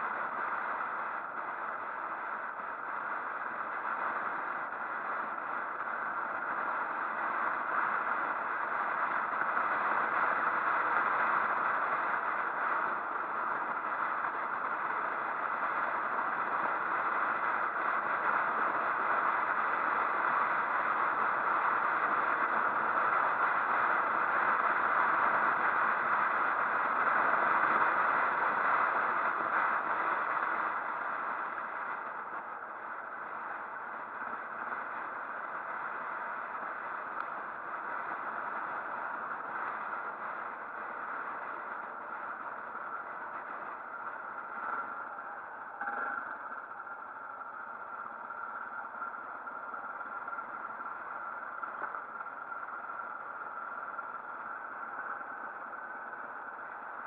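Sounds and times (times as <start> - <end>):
rushing wind: 0.0 - 57.0
motorcycle road noise: 36.0 - 57.0.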